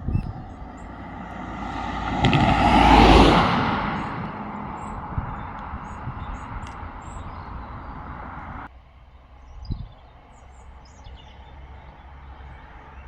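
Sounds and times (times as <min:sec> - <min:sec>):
small birds chirping: 0:00.0 - 0:08.7
vehicle passing: 0:00.0 - 0:08.7.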